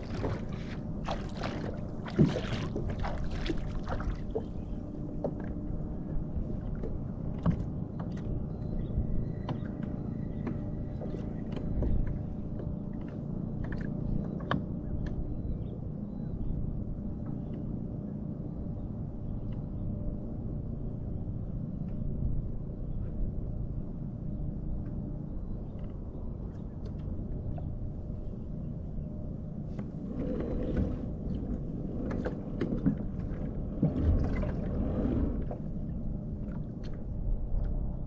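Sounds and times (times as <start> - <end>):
water splashes: 0.0 - 5.5, 29.9 - 37.3
water sloshing against hull: 0.0 - 38.0
steady low rumble: 22.1 - 38.0.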